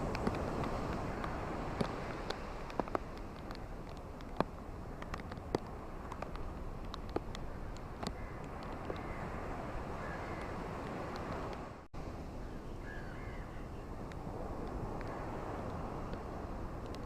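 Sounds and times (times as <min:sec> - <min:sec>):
surf on a beach: 0:00.0 - 0:17.0
faint bird calls: 0:10.0 - 0:10.6, 0:12.4 - 0:13.9.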